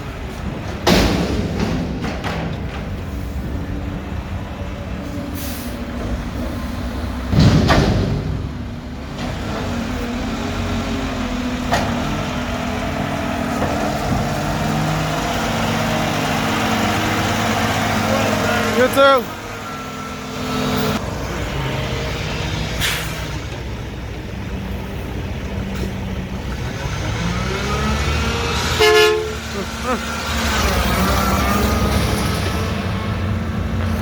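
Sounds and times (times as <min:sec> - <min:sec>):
diesel truck engine running: 0:00.0 - 0:34.0
air brakes hissing: 0:05.0 - 0:06.8.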